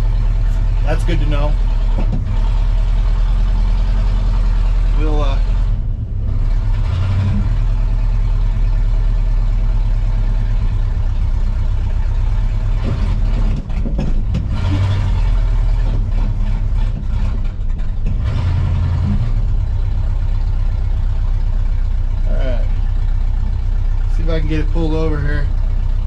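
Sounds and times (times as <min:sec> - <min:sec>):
truck engine droning: 0:00.0 - 0:26.0.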